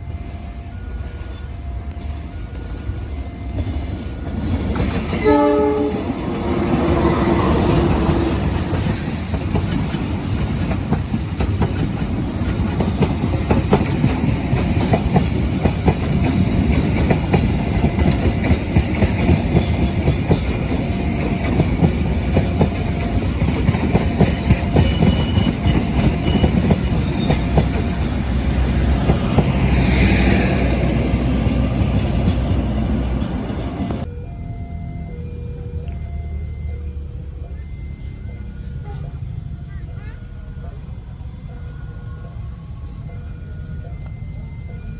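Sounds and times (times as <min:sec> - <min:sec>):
train rumbling past: 0:00.0 - 0:44.9
wheels clacking over rail joints: 0:03.6 - 0:34.1.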